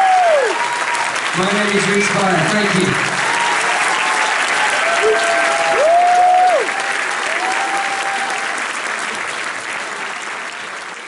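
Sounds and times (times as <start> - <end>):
crowd whooping: 0.0 - 1.2, 3.1 - 8.6
audience applauding: 0.0 - 11.0.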